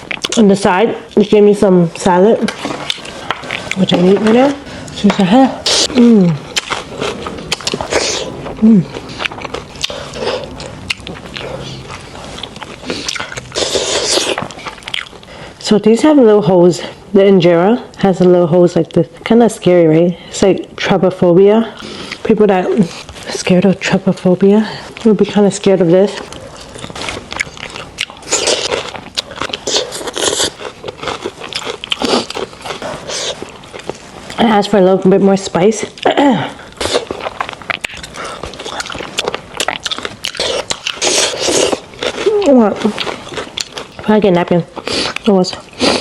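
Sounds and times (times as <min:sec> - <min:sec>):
person chewing salad: 0:00.0 - 0:00.5, 0:02.0 - 0:15.6, 0:21.8 - 0:23.4, 0:25.9 - 0:34.4, 0:35.9 - 0:46.0.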